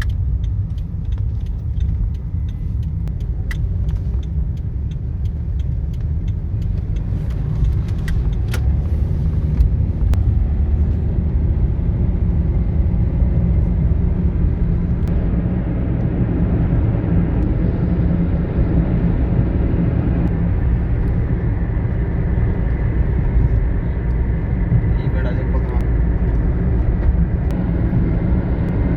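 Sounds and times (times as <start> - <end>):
sharp clicks: 0.0 - 8.8
cars rumbling close by: 0.0 - 28.9.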